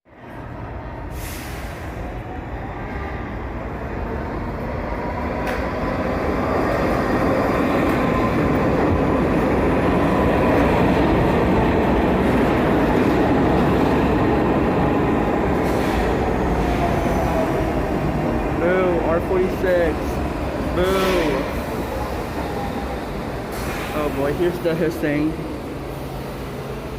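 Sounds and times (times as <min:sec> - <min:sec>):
subway train rumbling on rails: 0:00.0 - 0:26.9.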